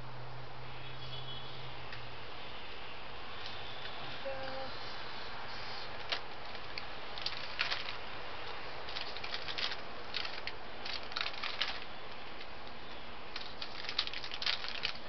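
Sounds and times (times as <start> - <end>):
steady hiss: 1.5 - 15.0
peanut shells clicking: 6.1 - 15.0.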